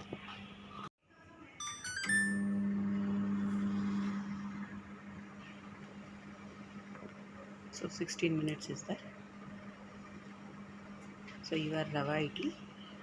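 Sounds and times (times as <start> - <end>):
microwave electrical hum: 0.0 - 13.0
microwave electronic beeps: 1.6 - 3.2.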